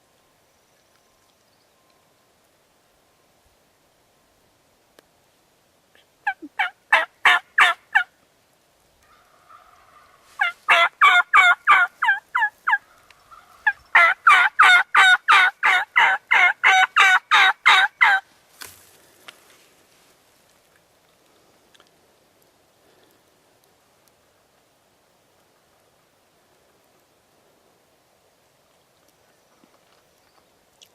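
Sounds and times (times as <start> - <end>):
turkey yelping: 6.2 - 8.1, 9.1 - 18.2.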